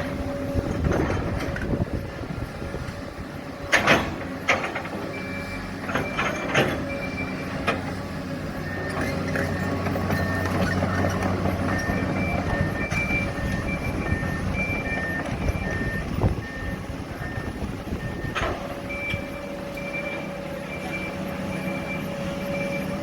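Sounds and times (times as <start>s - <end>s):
diesel engine running: 0.0s - 23.0s
reversing alarm beeping: 5.0s - 23.0s
high-pitched backup beeper: 11.7s - 23.0s.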